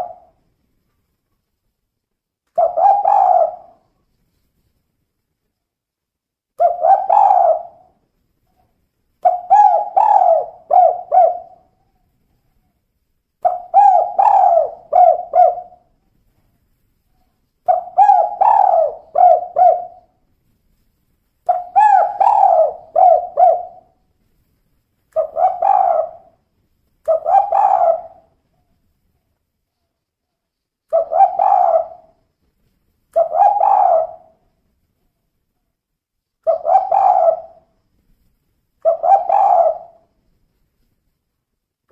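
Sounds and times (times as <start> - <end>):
dove cooing: 0.0 - 0.4, 2.6 - 3.8, 6.6 - 7.9, 9.2 - 11.7, 13.4 - 15.9, 17.7 - 20.1, 21.5 - 24.0, 25.2 - 26.4, 27.1 - 28.3, 30.9 - 32.2, 33.2 - 34.4, 36.4 - 37.6, 38.8 - 40.1.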